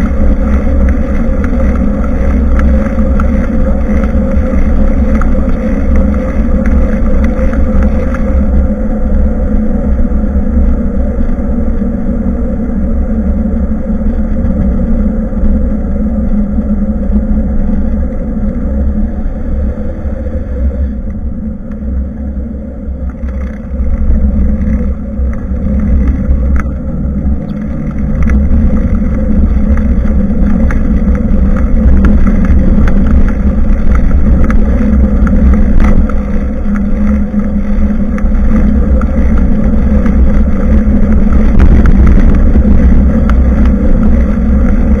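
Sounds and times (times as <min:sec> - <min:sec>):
road rumble: 0:00.0 - 0:45.0
wind buffeting microphone: 0:00.0 - 0:45.0
small rattles: 0:23.1 - 0:45.0.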